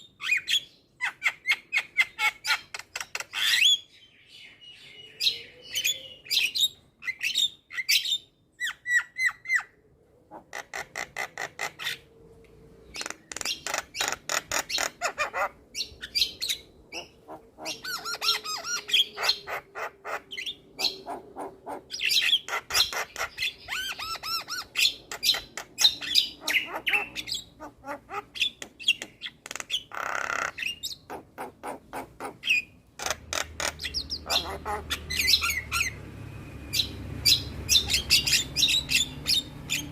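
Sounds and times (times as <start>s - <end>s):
bird singing varied song: 0.0s - 9.8s, 10.6s - 39.9s
bird rasping call: 13.0s - 36.0s.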